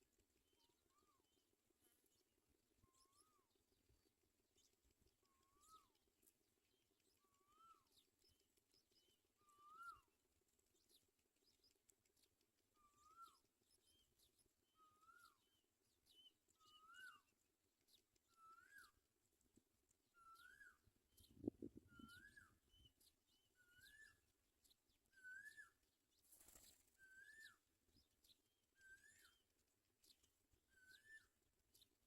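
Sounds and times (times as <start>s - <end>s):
high bird chirps: 20.2s - 24.2s.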